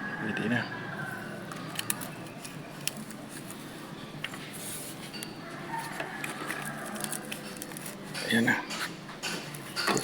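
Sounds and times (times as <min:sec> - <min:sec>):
hand tools tapping on metal: 0:06.0 - 0:10.0.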